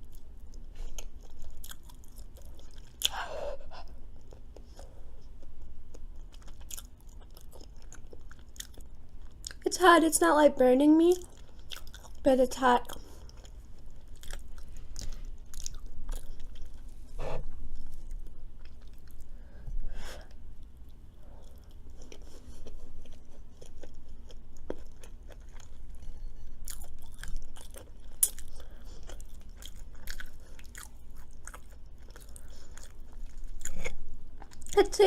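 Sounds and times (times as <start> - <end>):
chewing food crunches: 0.0 - 3.2, 4.2 - 9.6, 11.2 - 12.2, 12.8 - 17.0, 20.8 - 34.8.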